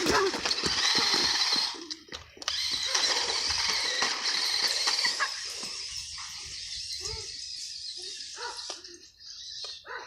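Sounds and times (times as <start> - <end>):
toy car motor whining: 0.0 - 9.9.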